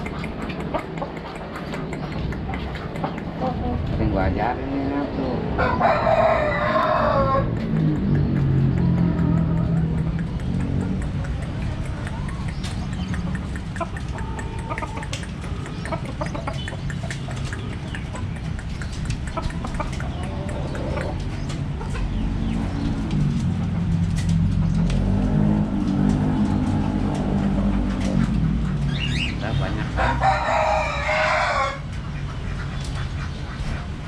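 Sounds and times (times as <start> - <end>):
steady low rumble: 0.0 - 31.0
birds chirping: 0.0 - 34.0.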